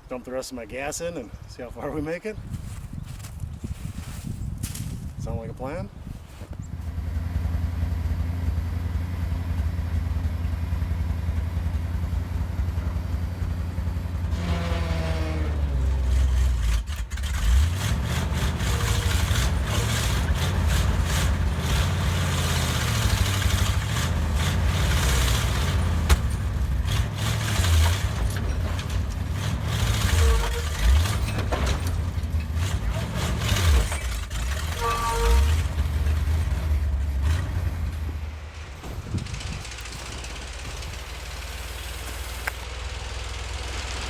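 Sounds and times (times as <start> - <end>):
truck engine running: 2.4 - 44.0.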